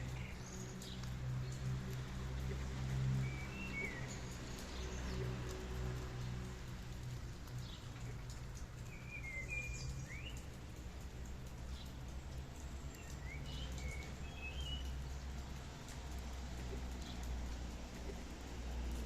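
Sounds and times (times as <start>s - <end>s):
steady rain: 0.0s - 19.0s
songbird chirping: 7.5s - 16.1s.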